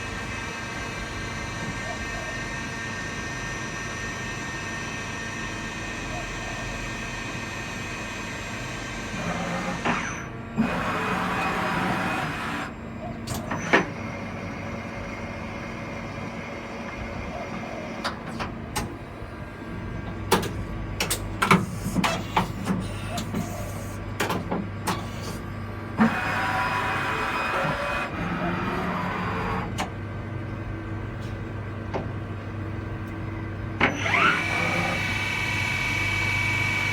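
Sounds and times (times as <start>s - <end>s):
milling machine humming: 0.0s - 36.9s
sharp clicks and clunks: 20.1s - 23.4s, 24.2s - 25.1s.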